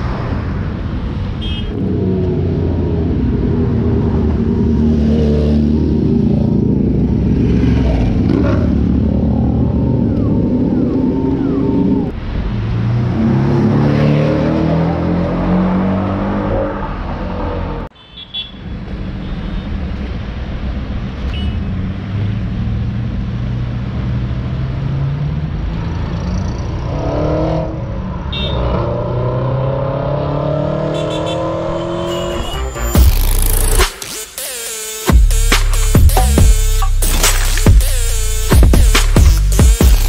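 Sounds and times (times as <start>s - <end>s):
car revving and pulling away: 1.7s - 17.9s, 21.6s - 34.5s
sports car engines accelerating: 1.7s - 17.9s, 21.8s - 33.8s.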